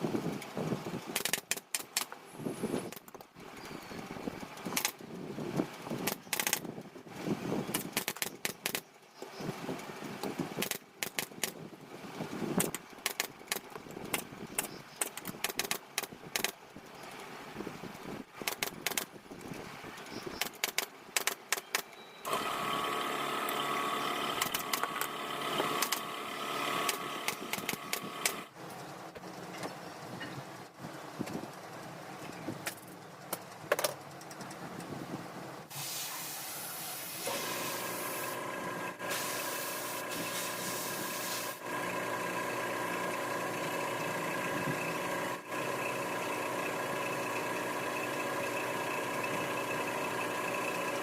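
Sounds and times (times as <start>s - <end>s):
sharp clicks and knocks: 1.1s - 2.2s, 6.0s - 6.7s, 7.7s - 9.3s, 10.3s - 11.6s, 12.6s - 16.6s, 18.4s - 19.6s, 20.4s - 22.0s, 24.4s - 26.1s, 26.8s - 30.4s, 32.2s - 34.9s
engine-like drone: 22.0s - 30.7s, 37.2s - 51.0s.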